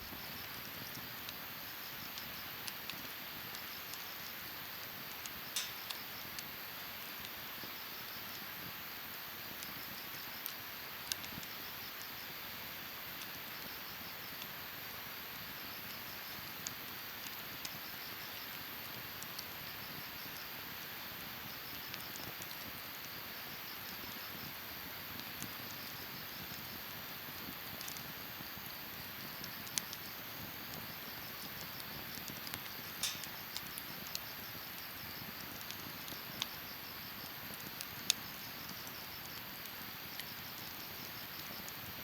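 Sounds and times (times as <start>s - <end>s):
fire crackles and pops: 0.0s - 42.0s
wood fire hissing: 0.0s - 42.0s.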